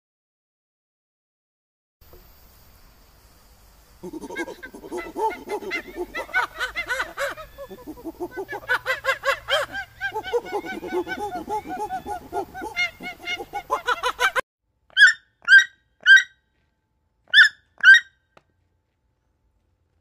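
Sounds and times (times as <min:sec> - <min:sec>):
monkeys chattering: 0:04.0 - 0:14.4.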